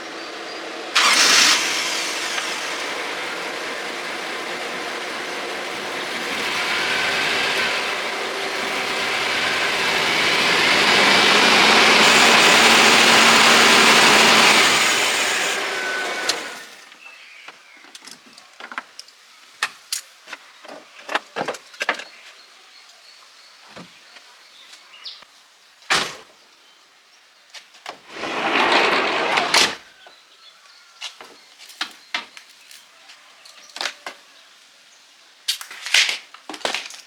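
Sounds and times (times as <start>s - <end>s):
hissing burst: 0.9s - 3.6s, 4.2s - 16.4s.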